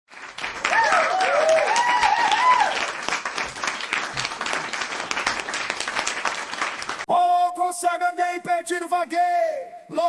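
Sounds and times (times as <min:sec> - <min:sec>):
crowd applauding: 0:00.1 - 0:07.1.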